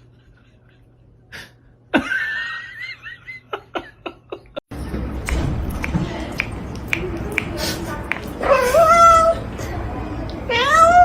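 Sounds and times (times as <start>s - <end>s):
person laughing: 1.9s - 4.6s.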